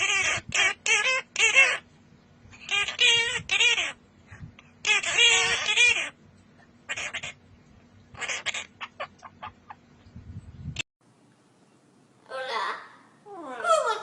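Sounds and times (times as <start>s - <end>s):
parrot calling: 0.0s - 1.9s, 2.6s - 4.0s, 4.8s - 6.2s, 6.9s - 7.4s, 8.1s - 9.8s.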